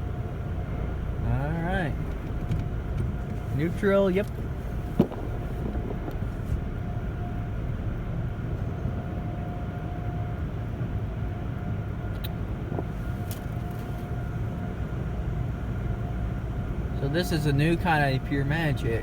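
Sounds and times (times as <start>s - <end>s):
car wash machinery rumbling: 0.0s - 11.8s, 12.4s - 19.0s
faint steady whine: 0.0s - 19.0s.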